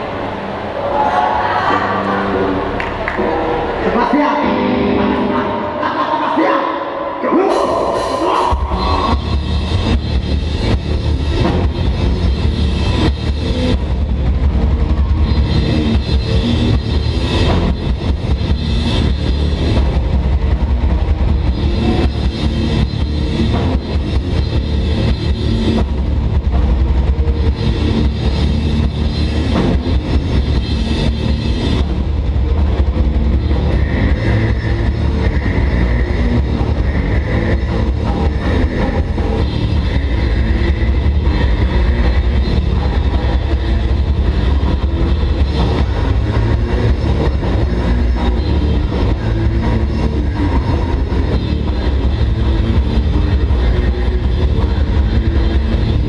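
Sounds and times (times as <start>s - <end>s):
bass: 0.0s - 56.0s
distorted guitars: 0.0s - 56.0s
fast dense drumming: 7.5s - 56.0s.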